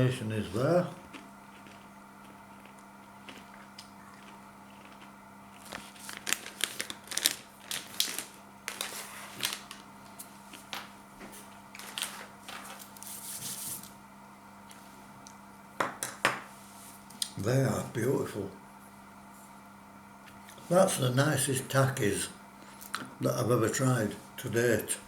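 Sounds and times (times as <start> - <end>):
chips crunching while eaten: 1.1 - 9.9.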